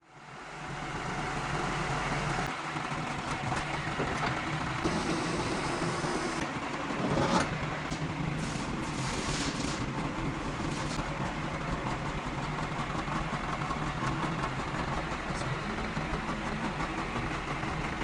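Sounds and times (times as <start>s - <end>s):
heavy vehicle engine running: 0.0s - 18.0s.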